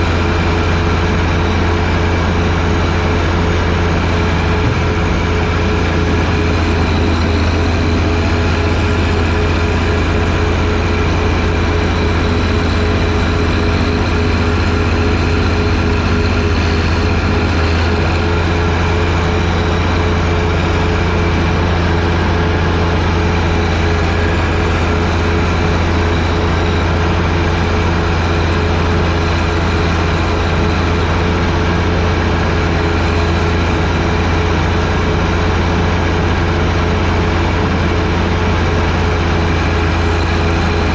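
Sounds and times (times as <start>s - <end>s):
tractor diesel engine droning: 0.0s - 40.9s.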